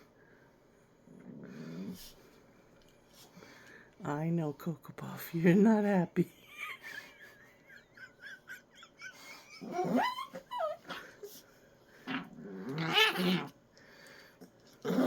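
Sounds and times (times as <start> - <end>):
dog growling: 1.0 - 2.2, 9.5 - 11.3, 11.9 - 13.6, 14.8 - 15.0
small dog whimpering: 9.4 - 11.3
dog yelping whines: 9.6 - 11.0.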